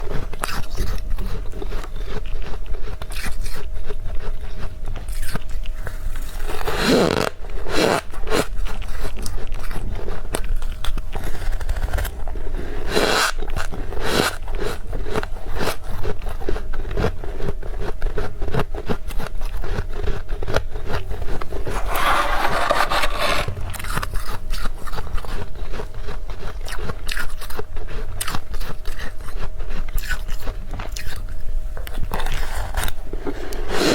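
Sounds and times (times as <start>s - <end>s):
frost scraped from freezer: 21.6s - 24.5s.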